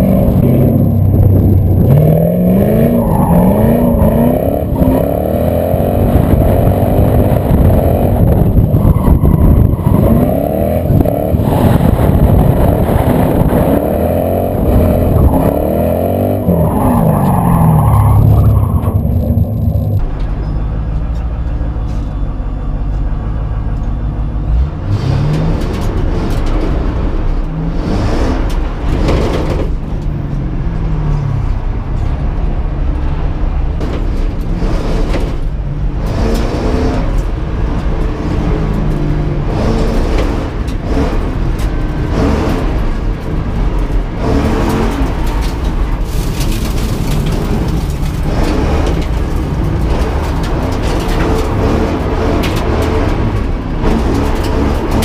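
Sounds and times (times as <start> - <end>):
car engine revving hard: 0.0 - 20.0, 39.4 - 43.1
dirt and wind rush: 0.0 - 20.4, 24.4 - 55.0.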